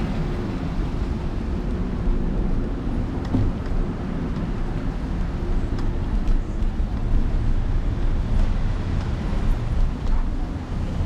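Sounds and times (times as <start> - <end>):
street traffic: 0.0 - 11.0
wind buffeting microphone: 0.0 - 11.0.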